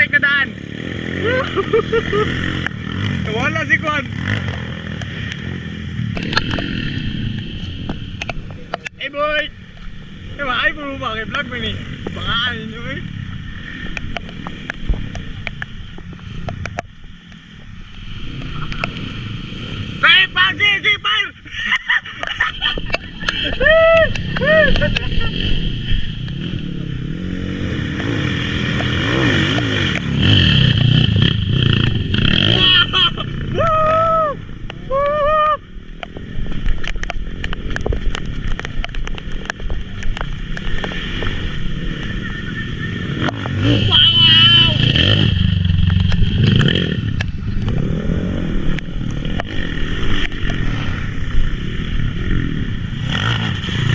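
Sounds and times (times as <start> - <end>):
small motorcycle engine running: 0.0 - 20.6, 21.7 - 34.9, 35.7 - 53.9
sharp clicks and knocks: 6.1 - 6.7, 7.3 - 9.0, 13.8 - 19.2, 36.0 - 41.4.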